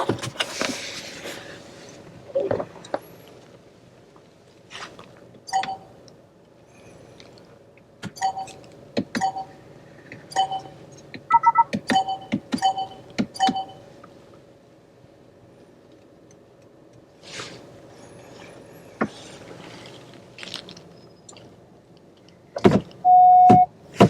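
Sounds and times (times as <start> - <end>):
short electronic beeps: 10.3 - 10.7, 11.3 - 13.8, 23.1 - 23.7.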